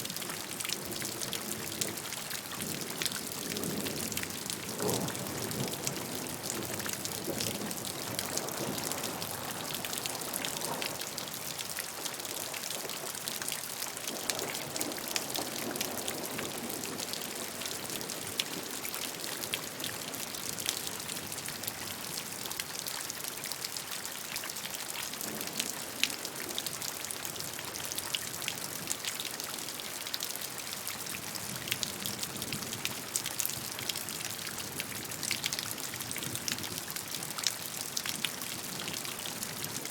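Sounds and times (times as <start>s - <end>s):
gentle rain: 0.0s - 39.9s.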